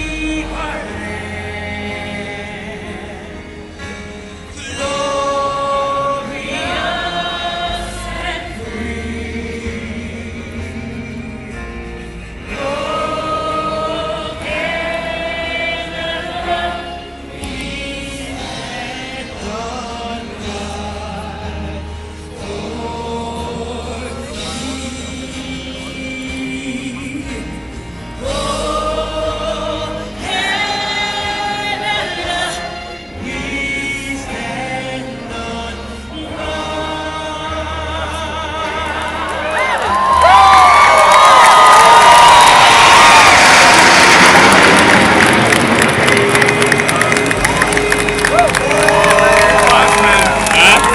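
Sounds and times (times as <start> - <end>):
low accompaniment: 4.6 - 50.9.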